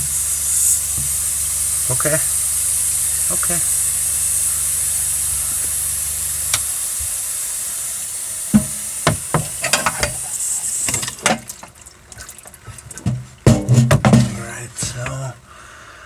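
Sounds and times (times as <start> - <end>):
water hissing from leaking hose: 0.0 - 15.6
water pump humming: 0.0 - 16.0
knocks and clicks of hose fitting: 0.9 - 1.2, 8.5 - 10.2, 12.7 - 14.4.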